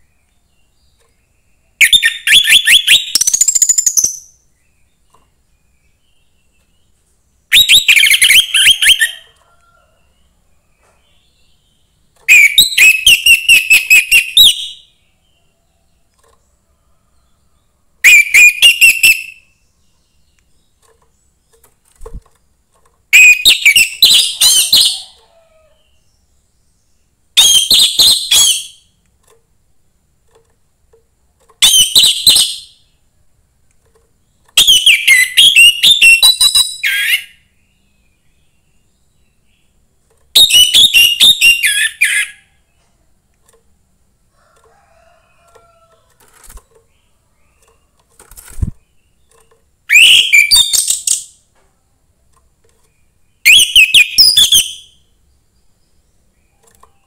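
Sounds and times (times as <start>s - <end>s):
thrush singing whistled notes: 1.8s - 4.4s, 7.5s - 9.3s, 12.3s - 14.9s, 18.0s - 19.4s, 23.1s - 25.1s, 34.6s - 37.4s, 40.4s - 42.4s, 49.9s - 51.3s, 53.4s - 55.0s.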